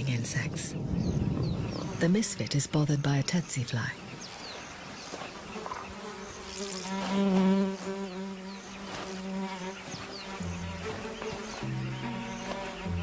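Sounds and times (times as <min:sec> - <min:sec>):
fly buzzing: 0:04.2 - 0:13.0.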